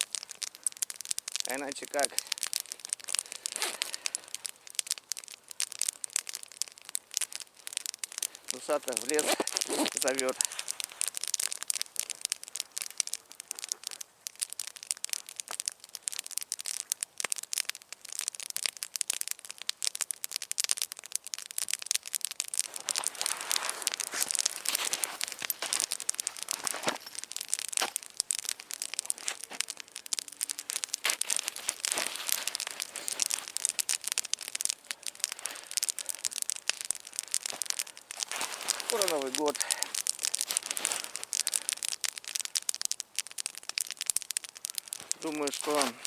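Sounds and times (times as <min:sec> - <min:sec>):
campfire crackling: 0:00.0 - 0:46.0.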